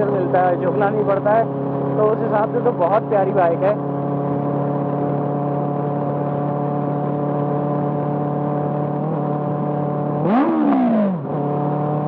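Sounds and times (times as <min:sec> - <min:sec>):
motorcycle engine droning: 0:00.0 - 0:12.0.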